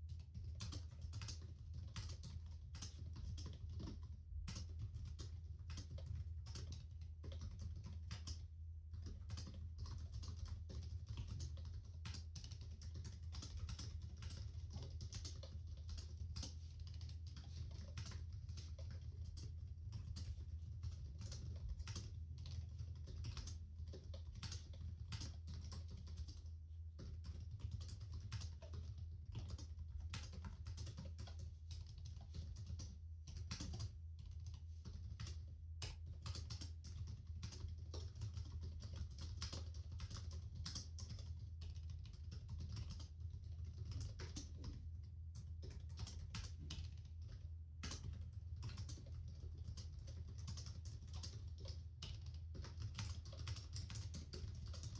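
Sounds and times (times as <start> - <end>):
keyboard typing: 0.1 - 54.9.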